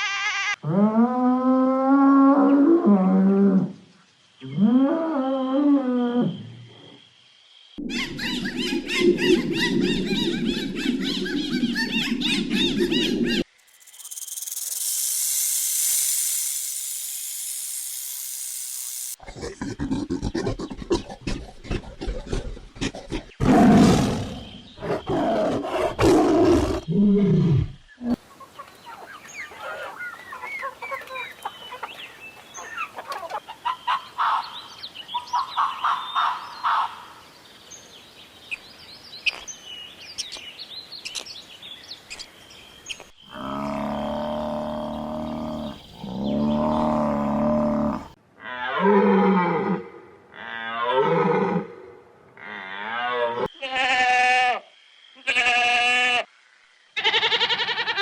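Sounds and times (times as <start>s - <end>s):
birds chirping: 7.8s - 19.2s, 27.8s - 36.9s, 38.5s - 48.2s
big cat roaring: 43.3s - 48.2s
long low pitched animal calls: 43.3s - 48.8s
wavering bleats: 43.3s - 48.8s, 52.4s - 54.6s, 55.2s - 56.3s.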